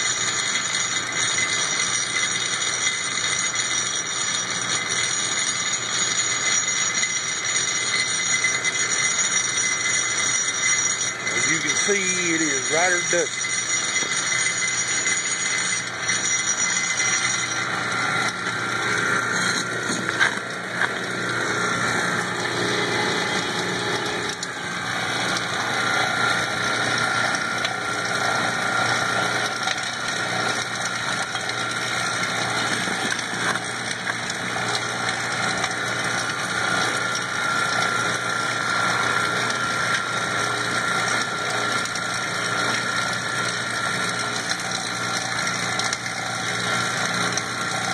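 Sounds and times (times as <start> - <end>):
rock crusher grinding charcoal: 0.0 - 47.9.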